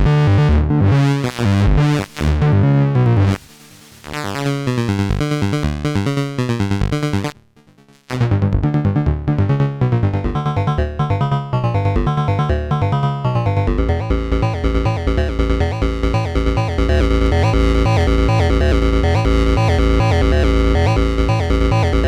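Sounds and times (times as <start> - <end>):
synth bass line: 0.0 - 7.3, 8.1 - 22.0
synthesizer sequenced pattern: 10.1 - 22.0.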